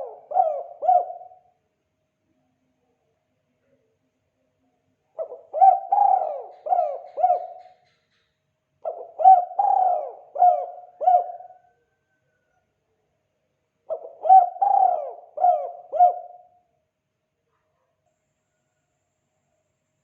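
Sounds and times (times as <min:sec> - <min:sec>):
dove cooing: 0:00.0 - 0:01.5, 0:05.2 - 0:08.0, 0:08.8 - 0:12.2, 0:13.9 - 0:16.6.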